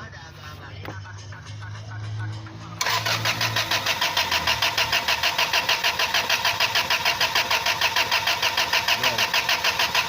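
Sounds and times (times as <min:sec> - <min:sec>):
engine cranking by starter motor: 0:02.8 - 0:10.0.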